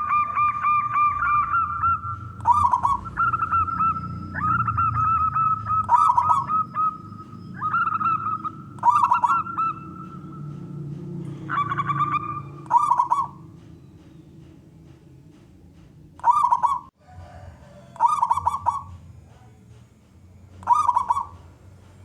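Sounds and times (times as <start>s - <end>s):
dove cooing: 0.0s - 13.6s, 16.2s - 19.0s, 20.6s - 21.5s.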